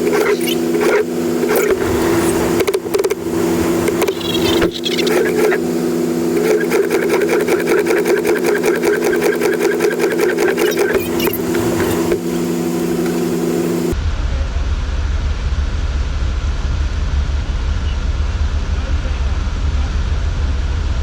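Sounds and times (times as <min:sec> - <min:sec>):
rapid rhythmic mechanical clatter: 0:00.0 - 0:14.0
vehicle engine hum: 0:00.0 - 0:21.0.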